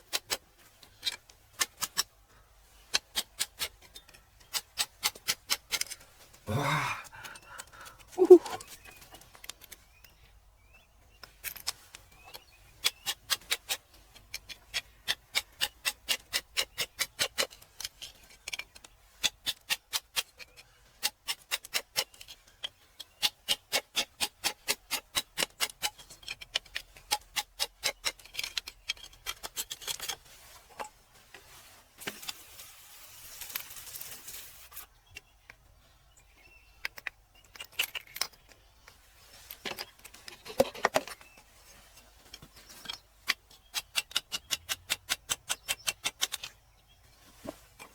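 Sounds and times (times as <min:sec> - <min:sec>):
hand tool chipping rock: 0:00.0 - 0:02.1, 0:02.9 - 0:08.9, 0:12.8 - 0:30.2, 0:43.2 - 0:46.5.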